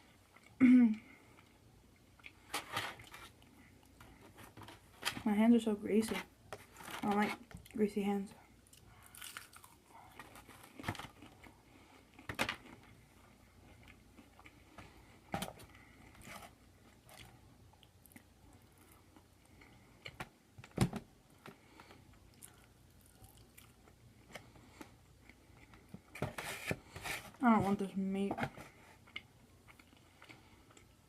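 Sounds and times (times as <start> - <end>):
person chewing food: 1.2 - 4.5, 8.6 - 20.4, 21.4 - 26.2, 29.0 - 31.0.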